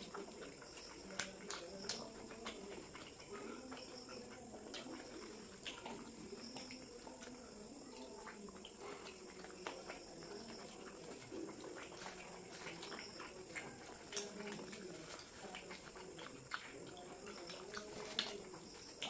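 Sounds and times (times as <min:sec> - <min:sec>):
wet mouth clicks: 0:00.0 - 0:07.4, 0:08.2 - 0:19.0
people chewing food: 0:00.0 - 0:19.0.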